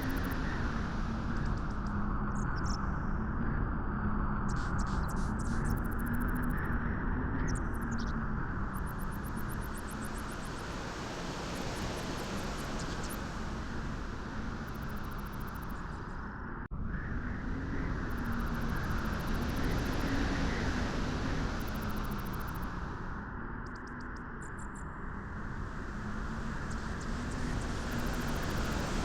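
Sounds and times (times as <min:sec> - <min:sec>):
rushing wind: 0:08.2 - 0:23.4, 0:24.8 - 0:29.0.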